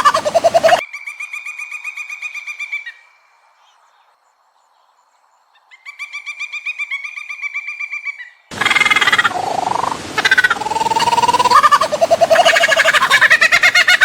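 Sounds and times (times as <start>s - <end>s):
bird trilling: 6.9s - 14.0s
harsh bird call: 8.1s - 14.0s.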